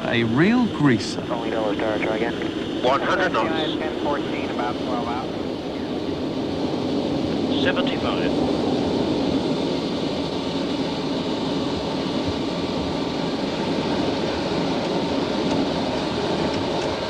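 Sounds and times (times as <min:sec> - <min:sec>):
airliner cockpit rumble and hiss: 0:00.0 - 0:17.0.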